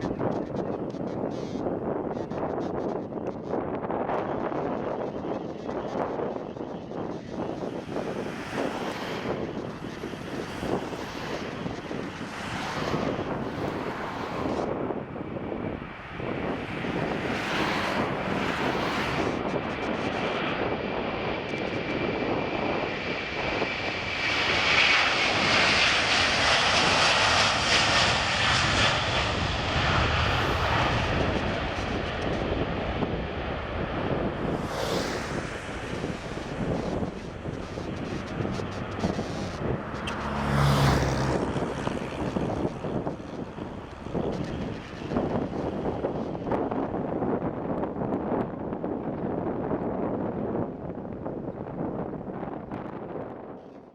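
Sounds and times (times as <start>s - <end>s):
jet engines roaring: 0.0s - 49.0s
faint high whine: 16.5s - 46.4s.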